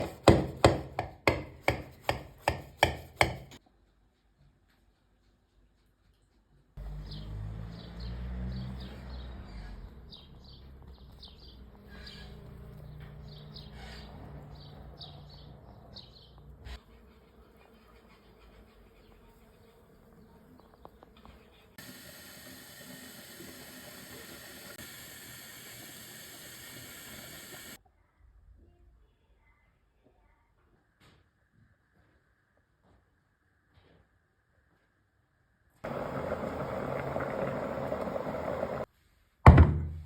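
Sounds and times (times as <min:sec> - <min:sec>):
birds chirping: 0:06.8 - 0:16.8.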